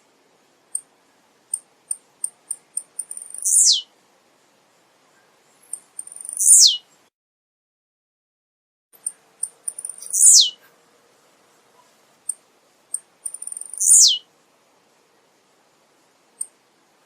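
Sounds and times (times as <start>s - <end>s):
bird singing high chips: 2.2s - 3.9s, 5.6s - 6.9s, 9.0s - 10.6s, 12.3s - 14.3s.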